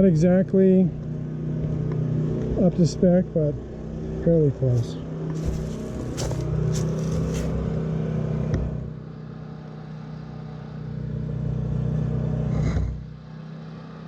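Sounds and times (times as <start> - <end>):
generator engine humming: 3.2 - 7.9.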